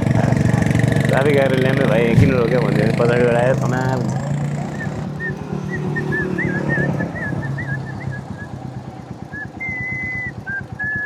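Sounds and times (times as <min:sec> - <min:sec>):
motorcycle engine running: 0:00.0 - 0:11.0
person whistling a tune: 0:04.8 - 0:11.0.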